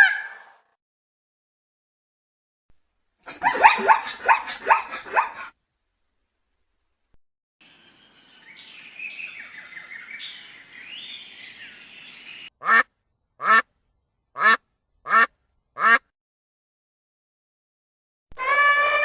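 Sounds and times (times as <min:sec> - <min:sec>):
animal calls: 0:03.3 - 0:05.5.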